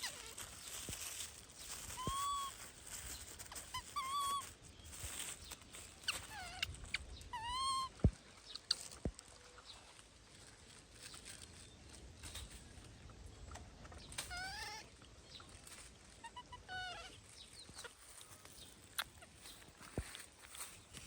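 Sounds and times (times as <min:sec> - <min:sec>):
faint clicks and rustles: 0:00.0 - 0:16.2, 0:17.2 - 0:21.0
baby monkey crying: 0:01.8 - 0:02.6, 0:06.0 - 0:08.0, 0:14.2 - 0:14.9, 0:16.2 - 0:18.0.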